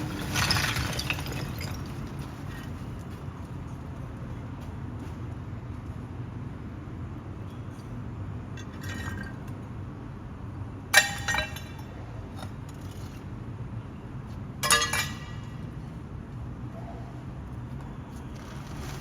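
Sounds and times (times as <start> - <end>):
truck engine rumbling: 0.0 - 4.6.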